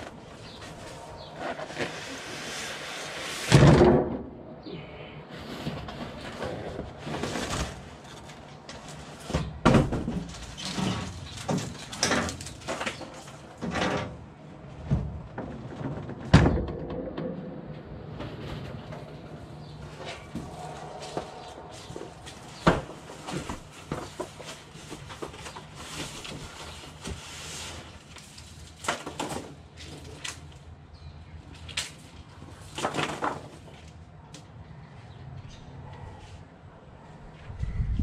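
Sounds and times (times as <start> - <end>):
rustling: 19.8 - 30.5.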